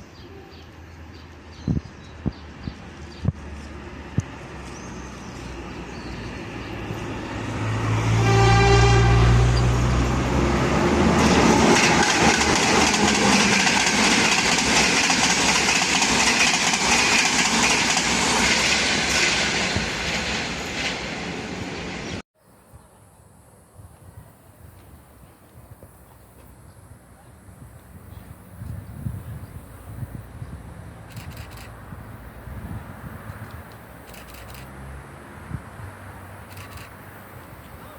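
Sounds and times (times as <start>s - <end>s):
train wheel and rail noise: 0.0s - 22.2s, 23.3s - 37.9s
train horn blast: 7.9s - 10.0s.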